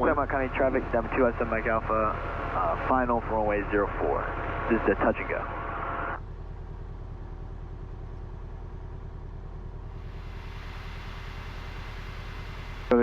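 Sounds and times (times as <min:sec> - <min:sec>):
airplane engine idling: 0:00.0 - 0:13.0
hiss: 0:10.1 - 0:12.9.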